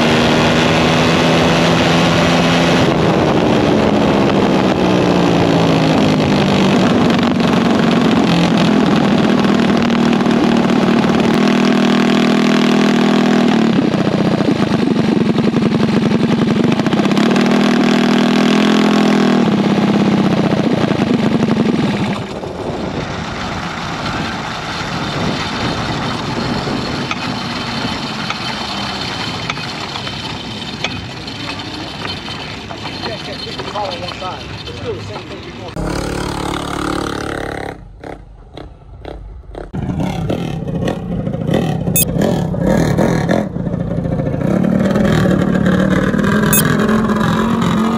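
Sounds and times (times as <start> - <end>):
racing engine at high revs: 0.0 - 22.1, 39.1 - 47.9.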